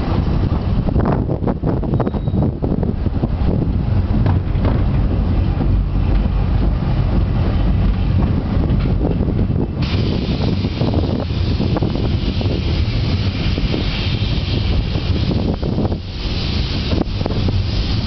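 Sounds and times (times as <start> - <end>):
train wheels rumbling: 0.0 - 18.0
loud hiss: 9.8 - 18.0.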